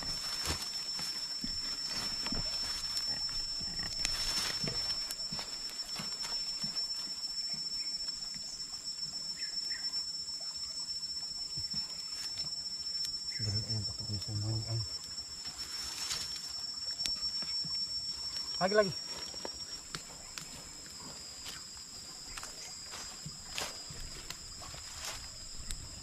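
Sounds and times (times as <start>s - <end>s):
insects droning: 0.0s - 26.0s
low voice: 13.4s - 14.9s.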